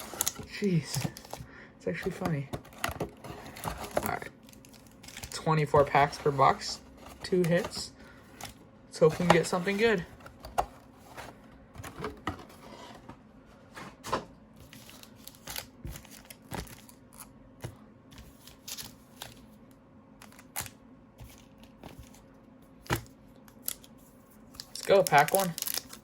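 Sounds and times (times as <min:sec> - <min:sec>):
wrappers crinkling: 0:24.6 - 0:26.0.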